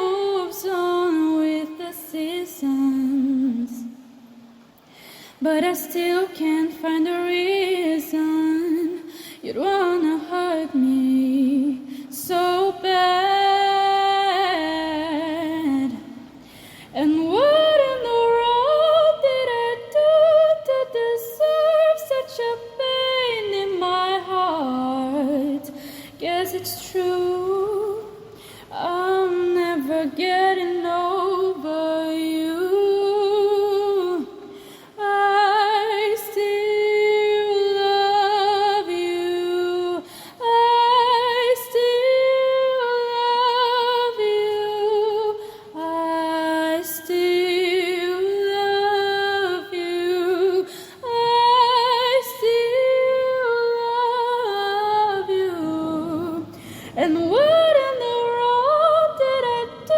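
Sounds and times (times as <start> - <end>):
woman singing a cappella: 0.0 - 59.9
singer breathing: 4.8 - 5.4, 9.1 - 9.4, 16.4 - 17.0, 25.7 - 26.2, 28.3 - 28.7, 34.5 - 35.0, 40.0 - 40.4, 50.7 - 51.0, 56.4 - 57.0.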